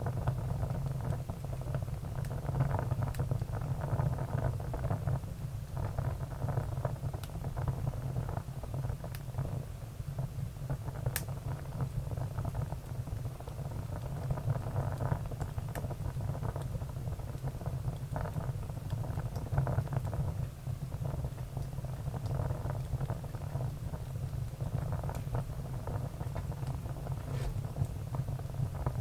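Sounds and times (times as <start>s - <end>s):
wood fire crackling: 0.0s - 29.0s
sharp pops from fire: 11.0s - 11.4s, 26.3s - 27.9s.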